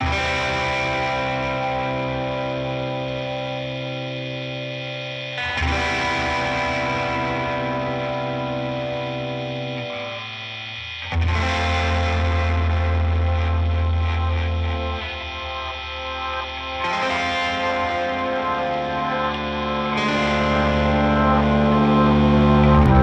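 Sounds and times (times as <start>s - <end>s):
distorted electric guitar chords: 0.0s - 23.0s
heavy bass: 11.0s - 23.0s.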